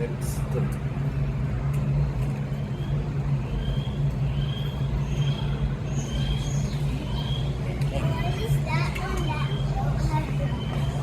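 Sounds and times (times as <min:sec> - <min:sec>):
low machine hum: 0:00.0 - 0:11.0
small birds chirping: 0:02.8 - 0:07.6.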